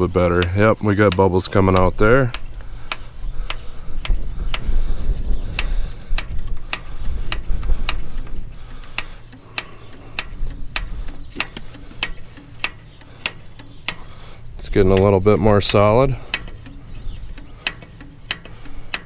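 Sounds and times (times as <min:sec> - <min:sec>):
fuel pump clicking: 0:00.0 - 0:19.0.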